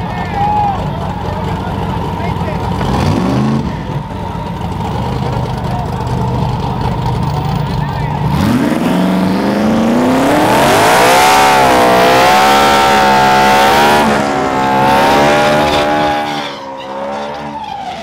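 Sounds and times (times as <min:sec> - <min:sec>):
tyres spinning and screeching: 0:02.6 - 0:18.0
engine revving hard: 0:02.8 - 0:04.0, 0:08.2 - 0:18.0.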